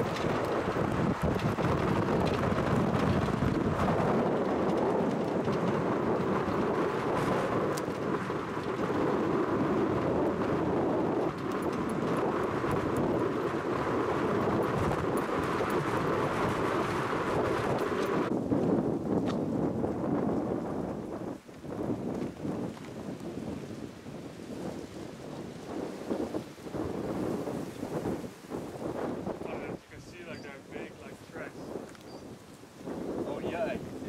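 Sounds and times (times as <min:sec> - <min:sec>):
vehicle engine and road rumble: 0:00.0 - 0:23.0
wind buffeting microphone: 0:00.0 - 0:34.0.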